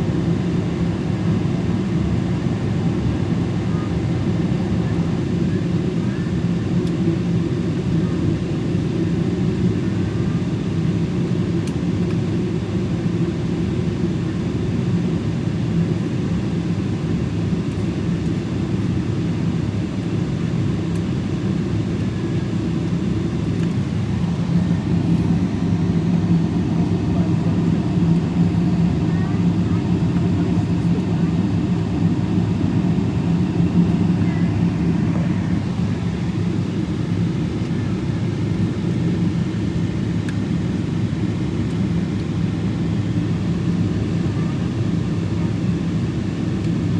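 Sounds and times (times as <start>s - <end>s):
airplane cabin rumble: 21.7s - 45.1s.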